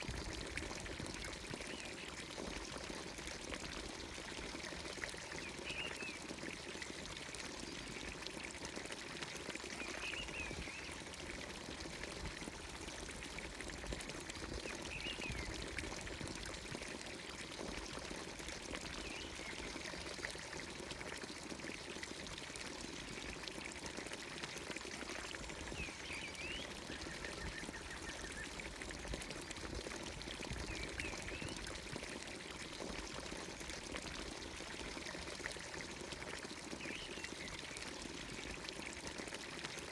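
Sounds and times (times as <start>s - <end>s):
fountain water pouring into trough: 0.0s - 39.9s.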